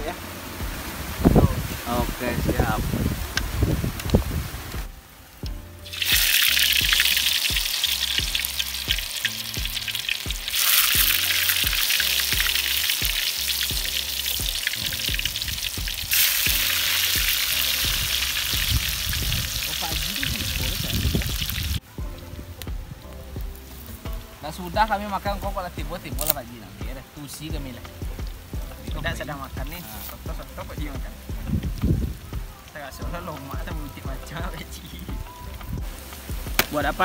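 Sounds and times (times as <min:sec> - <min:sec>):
background music with steady beat: 0:00.0 - 0:37.0
food frying in hot oil: 0:05.8 - 0:21.8.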